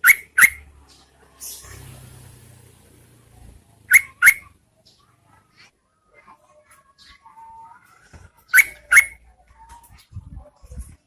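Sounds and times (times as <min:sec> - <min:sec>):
bird giving sharp calls: 0:00.0 - 0:00.7, 0:03.9 - 0:04.6, 0:08.5 - 0:09.2.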